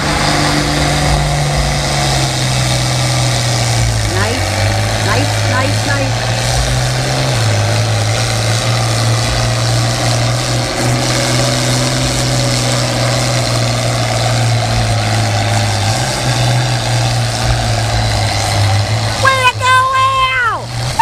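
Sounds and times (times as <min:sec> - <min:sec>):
tractor engine deep drone: 0:00.0 - 0:21.0.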